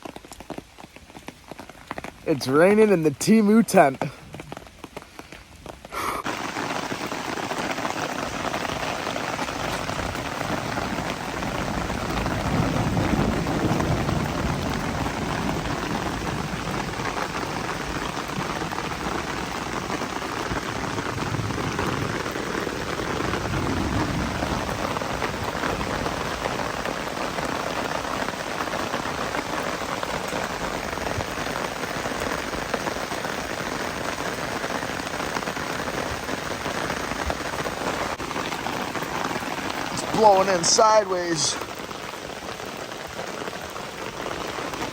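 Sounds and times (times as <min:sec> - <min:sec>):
rain on tent fabric: 0:00.0 - 0:44.9.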